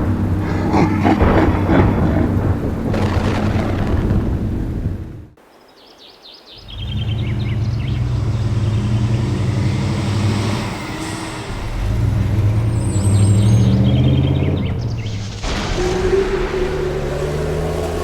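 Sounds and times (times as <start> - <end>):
rumbling storm: 0.0 - 5.4, 6.6 - 18.0
vehicle engine humming: 0.0 - 5.4, 6.6 - 18.0
birds chirping: 0.0 - 18.0.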